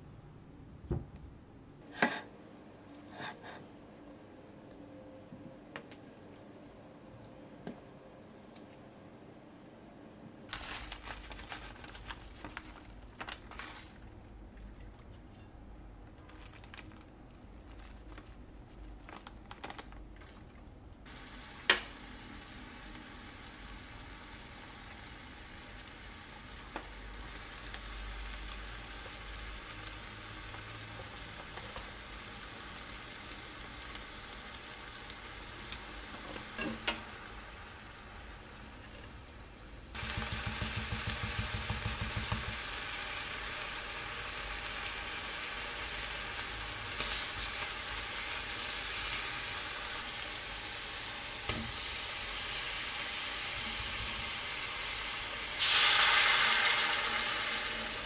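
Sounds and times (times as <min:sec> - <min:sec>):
meat sizzling in a frying pan: 0:21.1 - 0:38.8, 0:39.9 - 0:58.0.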